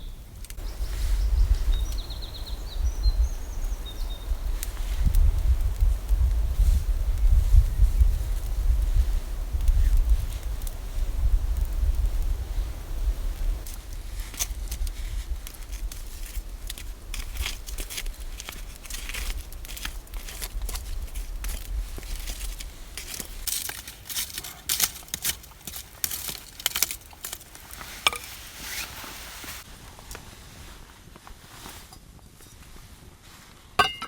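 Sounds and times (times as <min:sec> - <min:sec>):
wind rumbling on microphone: 0:00.0 - 0:23.5
crinkly rustling and crackling: 0:03.6 - 0:33.8.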